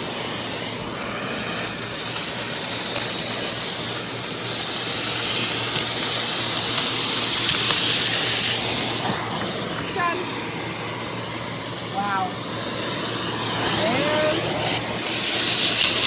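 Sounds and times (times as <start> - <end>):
vacuum cleaner running: 0.0 - 16.0
ticks of grit sucked up: 0.1 - 10.0, 13.2 - 16.0.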